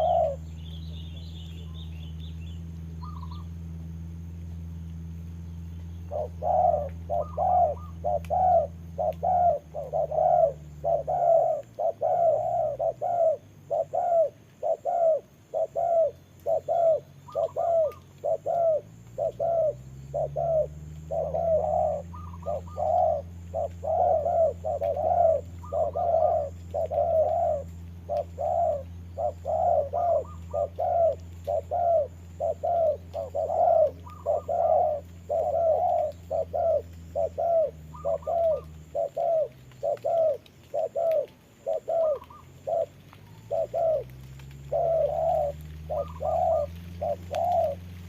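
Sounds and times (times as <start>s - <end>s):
doves cooing: 0.0s - 48.0s
low steady hum: 0.0s - 48.0s.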